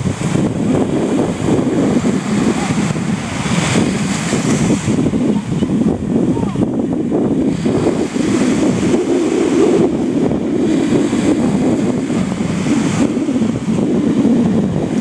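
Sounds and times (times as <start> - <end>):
strong wind on microphone: 0.0 - 15.0.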